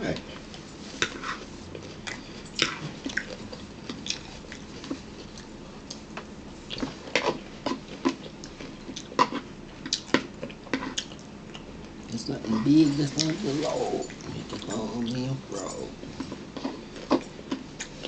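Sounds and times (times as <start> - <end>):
chewing clicks and smacks: 6.7 - 12.0.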